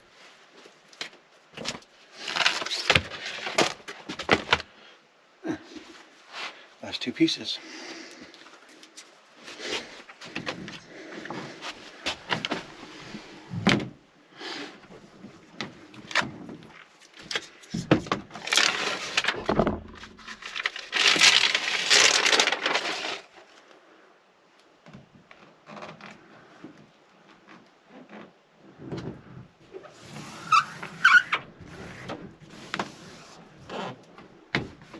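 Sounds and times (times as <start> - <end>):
foil sheets crinkling and rustling: 1.7 - 4.6, 17.1 - 23.6.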